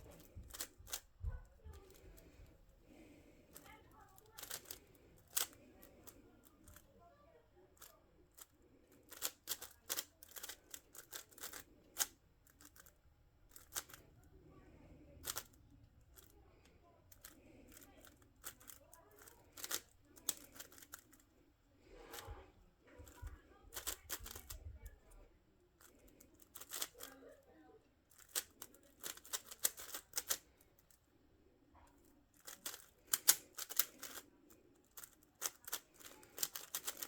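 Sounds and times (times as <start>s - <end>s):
puzzle cube clicking: 0.0s - 1.1s, 3.5s - 6.8s, 8.4s - 14.1s, 15.2s - 16.3s, 17.1s - 21.2s, 23.0s - 24.6s, 25.8s - 27.1s, 28.1s - 30.6s, 32.4s - 37.0s.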